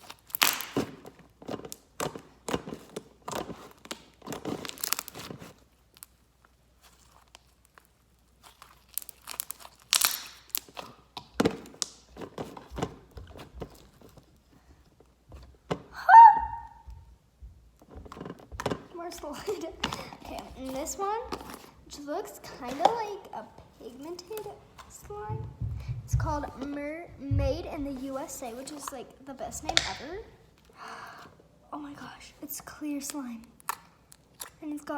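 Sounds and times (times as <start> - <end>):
hands squishing slime: 0.0 - 15.0, 18.0 - 31.3, 31.9 - 34.9
high-pitched squeak: 16.0 - 16.8.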